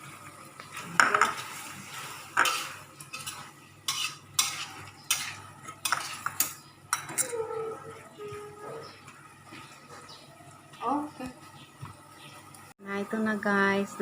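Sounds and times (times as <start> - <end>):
utensil scraping food in a pan: 0.7 - 7.4.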